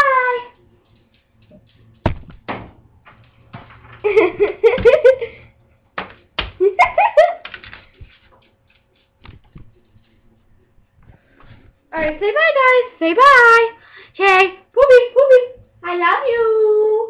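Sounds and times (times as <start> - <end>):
person giggling: 4.0 - 5.5, 6.6 - 7.6.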